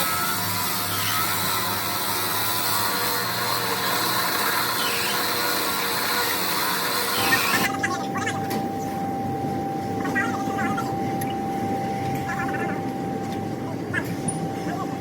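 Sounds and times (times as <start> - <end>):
machinery high whine: 0.0 - 15.0
low hum: 7.0 - 15.0.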